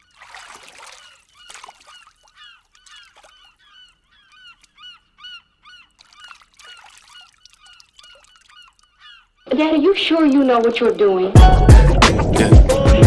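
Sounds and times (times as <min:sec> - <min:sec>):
birds honking: 0:00.9 - 0:12.4.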